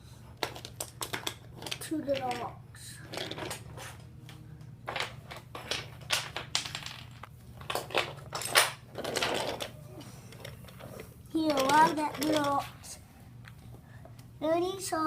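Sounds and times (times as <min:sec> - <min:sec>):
toy trains clattering on track: 0:00.4 - 0:03.8, 0:04.9 - 0:09.7, 0:10.3 - 0:13.0.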